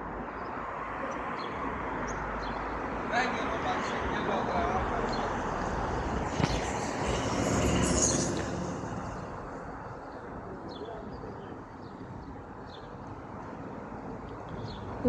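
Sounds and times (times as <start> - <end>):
vehicle passing: 2.6 - 10.5.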